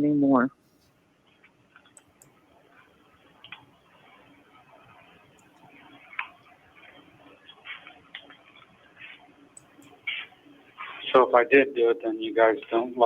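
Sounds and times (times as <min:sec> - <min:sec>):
faint clicks: 0:01.8 - 0:02.4.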